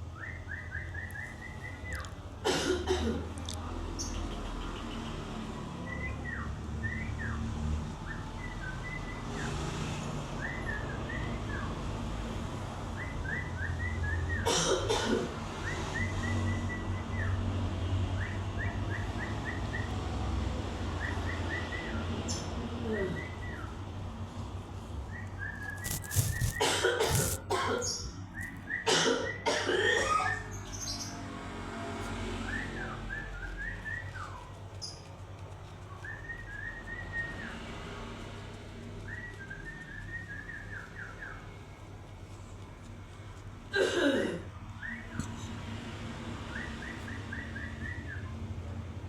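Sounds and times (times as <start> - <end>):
loud scratchy bursts: 25.6 - 27.8
bird whistled notes: 39.0 - 41.6.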